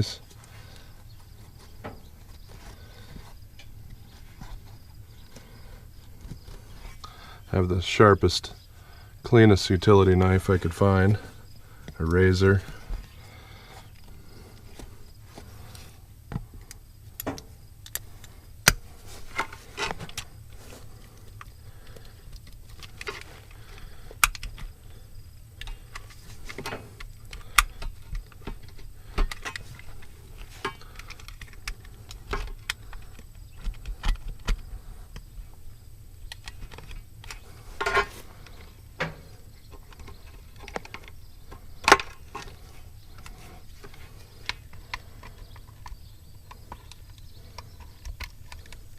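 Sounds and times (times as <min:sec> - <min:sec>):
clicks taps and scrapes: 0:36.2 - 0:48.9.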